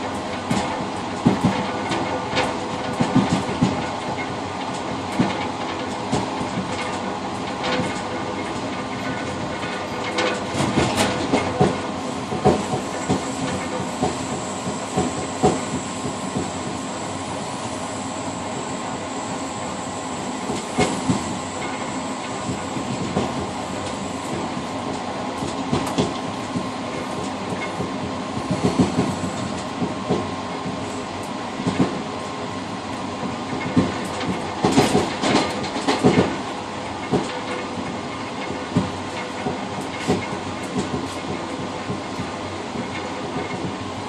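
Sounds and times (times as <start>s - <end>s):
train rumble: 0.0s - 44.0s
wheels clicking over rail joints: 37.0s - 43.8s.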